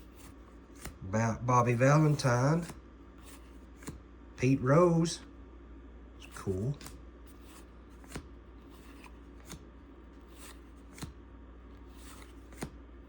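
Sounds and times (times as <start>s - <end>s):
cards flicked off a stack: 10.4s - 11.2s, 12.1s - 12.8s.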